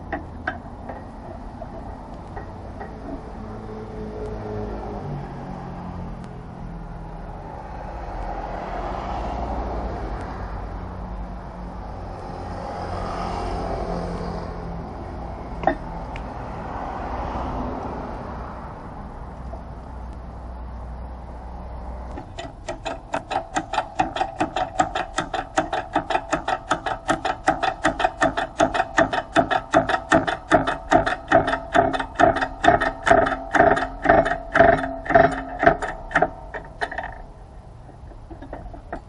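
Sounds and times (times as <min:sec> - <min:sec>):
rapid metallic knocking: 0:00.0 - 0:03.4, 0:15.6 - 0:15.8, 0:22.1 - 0:39.0.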